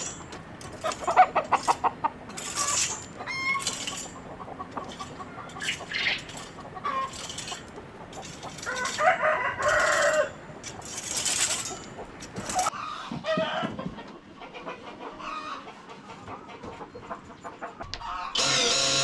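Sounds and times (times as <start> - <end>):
rustling or scratching: 0.0 - 12.8
chickens clucking: 0.0 - 18.4
rooster crowing: 8.6 - 10.4.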